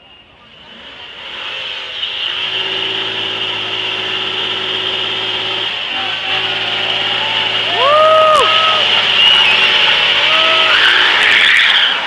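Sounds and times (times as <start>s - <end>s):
road noise: 0.0s - 12.0s
vehicle engine running steadily: 0.0s - 12.0s.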